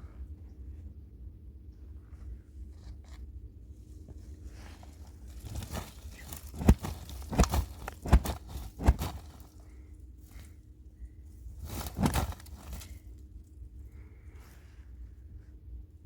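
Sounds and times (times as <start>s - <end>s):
low steady rumble: 0.0s - 16.0s
heavy footsteps: 5.3s - 9.6s, 11.6s - 12.9s.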